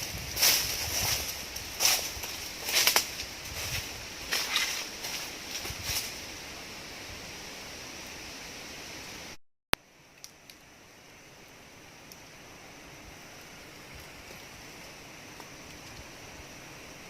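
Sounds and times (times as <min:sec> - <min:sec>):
faint outdoor hiss: 0:00.0 - 0:17.0
faint ticks: 0:10.1 - 0:10.6.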